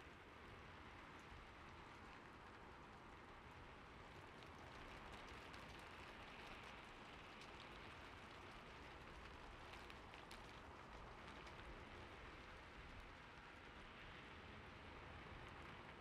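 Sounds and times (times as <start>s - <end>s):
gentle rain: 0.0s - 16.0s.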